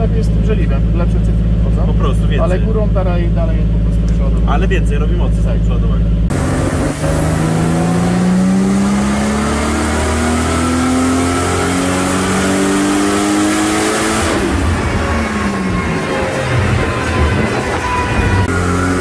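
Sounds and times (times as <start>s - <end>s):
turbo whine: 6.0s - 11.0s, 11.7s - 19.0s
car engine revving on dyno: 6.2s - 19.0s.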